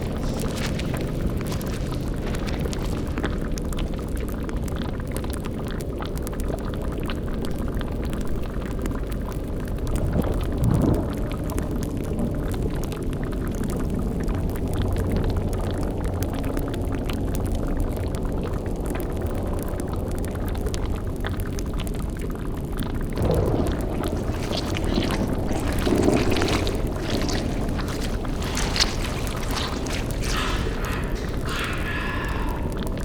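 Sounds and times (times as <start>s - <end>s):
bubbling and crackling cauldron: 0.0s - 33.0s
loud gurgling: 23.2s - 33.0s
low drone: 23.2s - 33.0s.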